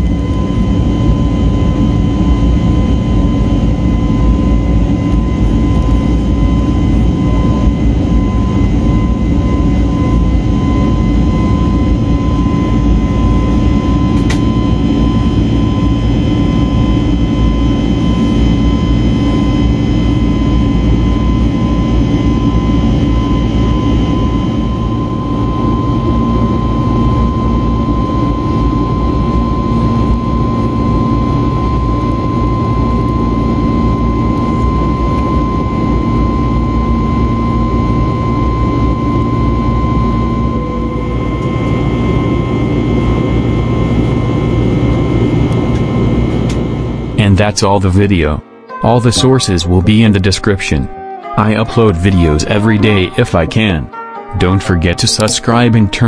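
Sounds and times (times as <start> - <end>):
deep engine and air roar: 0.0 - 56.0
steady high engine whine: 0.0 - 56.0.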